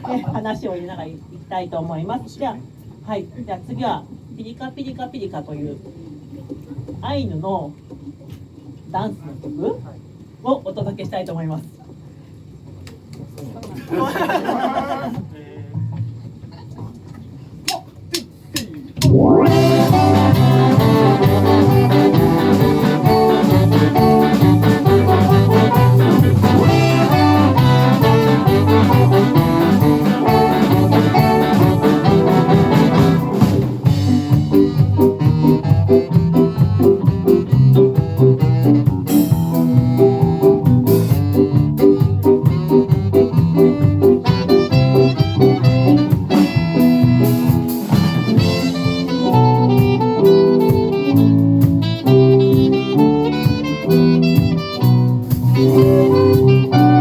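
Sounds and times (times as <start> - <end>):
live band playing dance tune: 19.0 - 57.0.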